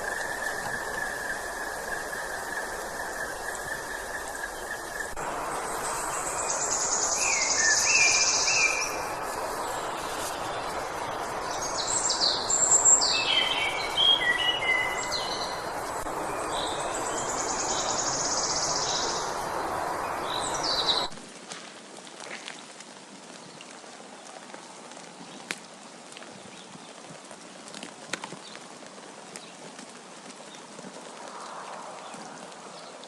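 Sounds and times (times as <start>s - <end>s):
outdoor hiss: 0.0s - 22.4s
birds chirping and whistling: 11.3s - 15.6s.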